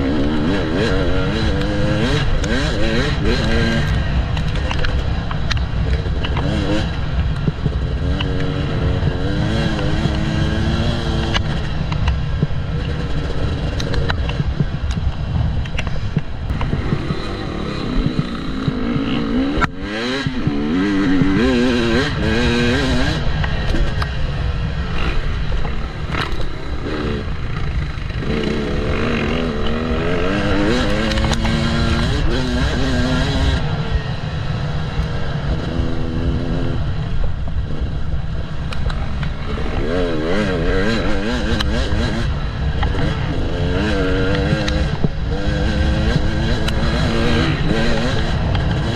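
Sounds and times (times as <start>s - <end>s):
constant low rumble: 0.0s - 48.9s
two-stroke motorcycle engine revving: 0.0s - 48.9s
sharp clicks: 30.4s - 32.3s.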